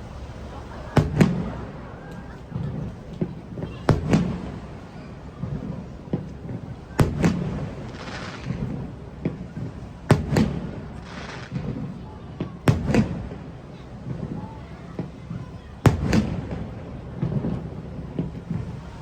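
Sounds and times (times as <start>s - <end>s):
firework shells bursting with bangs: 0.0s - 12.0s, 15.9s - 16.8s
crackling hiss: 0.0s - 16.9s.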